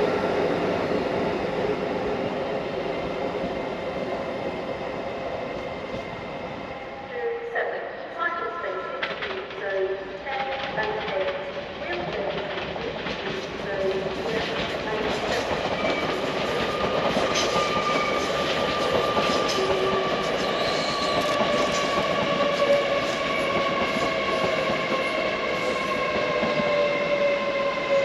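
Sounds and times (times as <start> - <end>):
train whine: 0.0 - 7.5, 8.4 - 28.0
train rumble: 8.2 - 28.0.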